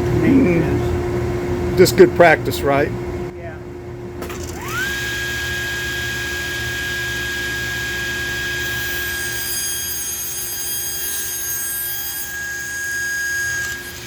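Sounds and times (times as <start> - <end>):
table saw motor whining: 4.2 - 14.0.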